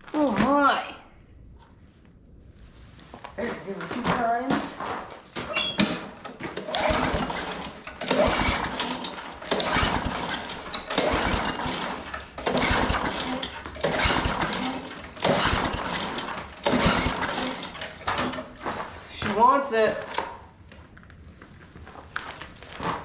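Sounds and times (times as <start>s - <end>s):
lawn mower engine pull-started: 5.5s - 19.1s, 19.7s - 20.5s.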